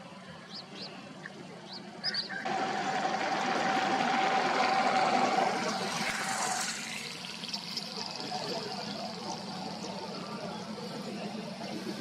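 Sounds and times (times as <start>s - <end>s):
motor engine whining: 2.4s - 12.0s.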